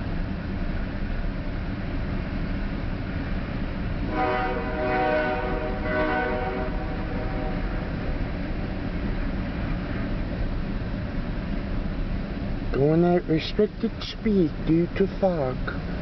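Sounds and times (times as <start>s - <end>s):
train cars rumbling past: 0.0s - 16.0s
locomotive horn: 4.0s - 8.2s.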